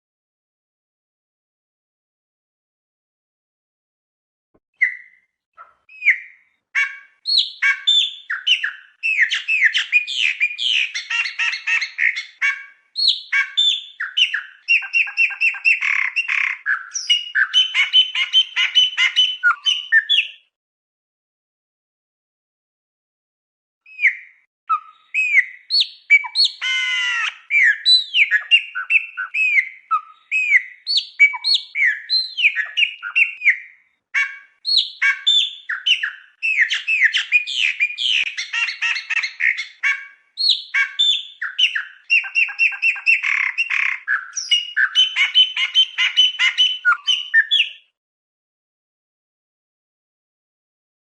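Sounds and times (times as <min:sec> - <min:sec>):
songbird singing: 0:04.8 - 0:20.5, 0:23.9 - 0:48.0.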